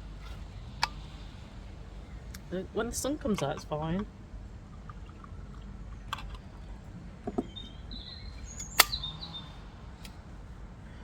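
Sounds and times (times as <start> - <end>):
bird chirping: 7.3 - 9.9
sharp clicks: 8.4 - 9.2.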